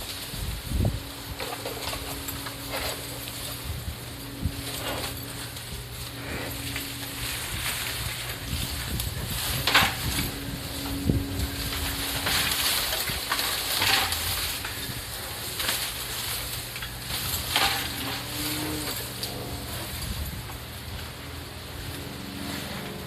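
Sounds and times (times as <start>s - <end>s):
leaves rustling and crackling: 0.0s - 23.0s
steady low hum: 0.0s - 23.0s.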